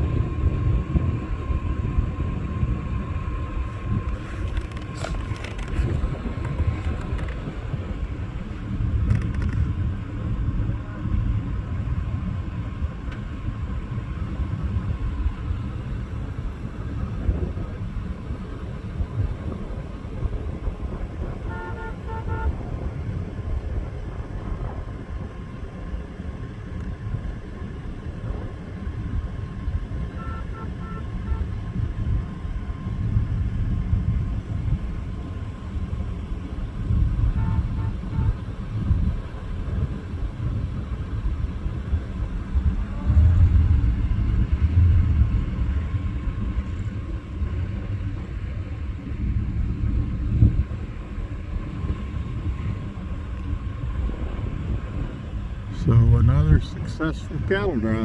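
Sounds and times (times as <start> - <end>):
vehicle engine rumble: 0.0 - 58.0
short horn beeps: 21.5 - 22.6, 30.1 - 31.5, 37.4 - 38.4
wind on microphone: 36.8 - 58.0.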